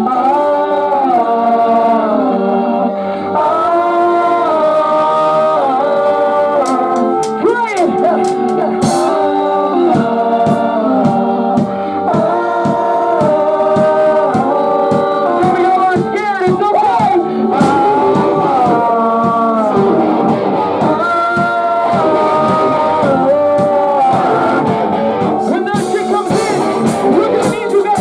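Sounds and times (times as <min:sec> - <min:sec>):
guitar: 0:00.0 - 0:28.0
keyboard: 0:00.0 - 0:28.0
person singing: 0:00.0 - 0:28.0
drums: 0:06.6 - 0:09.3, 0:09.9 - 0:28.0
cymbals: 0:08.2 - 0:09.3, 0:25.8 - 0:28.0.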